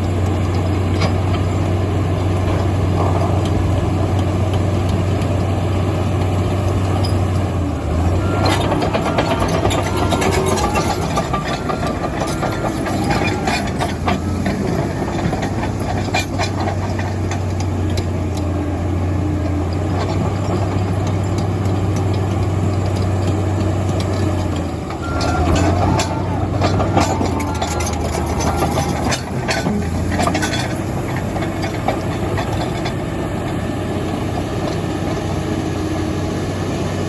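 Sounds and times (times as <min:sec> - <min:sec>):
diesel engine running: 0:00.0 - 0:37.0
metallic clicks and clanks: 0:21.3 - 0:33.0.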